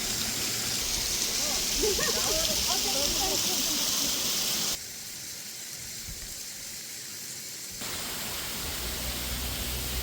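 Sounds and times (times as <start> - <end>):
waterfall rushing: 0.0 - 4.8, 7.8 - 10.0.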